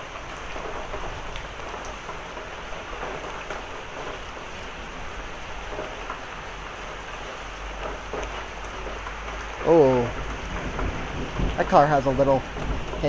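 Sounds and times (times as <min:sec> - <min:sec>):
hailstones ticking: 0:00.0 - 0:13.0
heavy rain and hail: 0:00.0 - 0:13.0.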